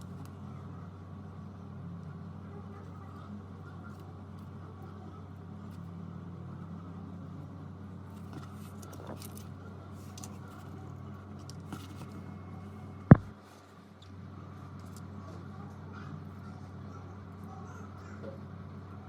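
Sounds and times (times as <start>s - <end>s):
handling clicks and taps: 13.1s - 13.3s.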